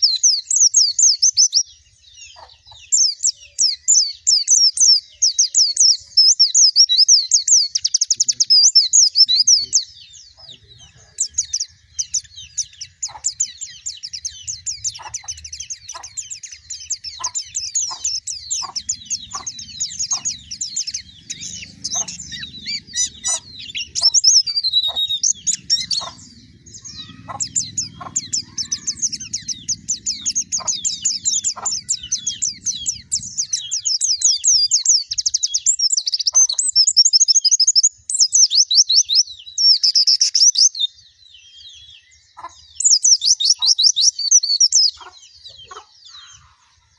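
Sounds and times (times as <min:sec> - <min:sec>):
bird twittering warble: 0:00.0 - 0:46.9
faint low rumble: 0:24.6 - 0:33.5.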